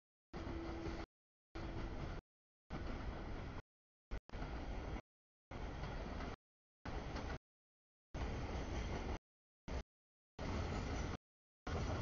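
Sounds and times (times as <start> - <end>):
freight train rumbling past: 0.4 - 3.6, 4.4 - 7.4, 8.2 - 9.8, 10.4 - 12.0.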